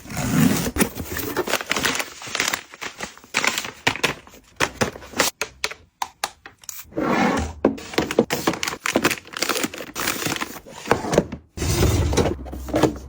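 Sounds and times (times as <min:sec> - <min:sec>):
packaging crinkling and rustling: 0:00.6 - 0:05.8, 0:07.8 - 0:10.8.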